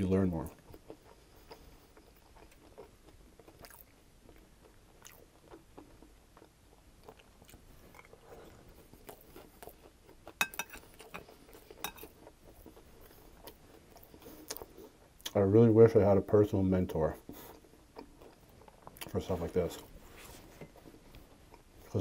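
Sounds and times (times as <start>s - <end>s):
soft chewing with crunches: 0.0s - 22.0s.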